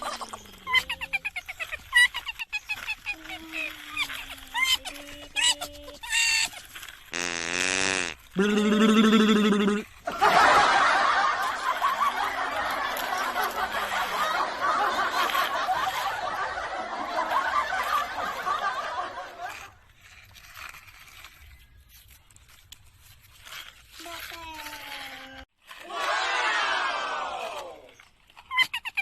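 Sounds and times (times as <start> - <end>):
crowd laughing: 8.4 - 19.8, 25.9 - 27.6.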